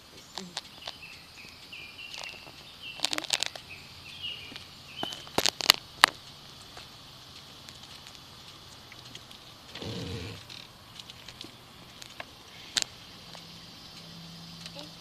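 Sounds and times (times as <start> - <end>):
sharp clicks and crackles: 0.0 - 15.0
high insect buzz: 9.8 - 10.6.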